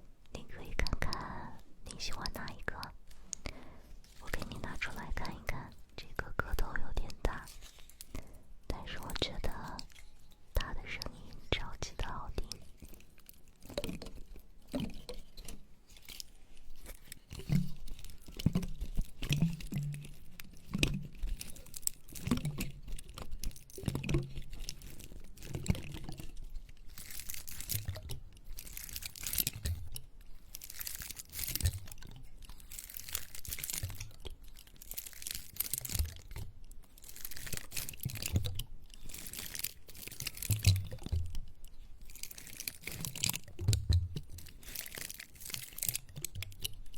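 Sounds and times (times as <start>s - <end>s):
pine cone scratching: 24.2s - 29.8s, 30.5s - 36.4s.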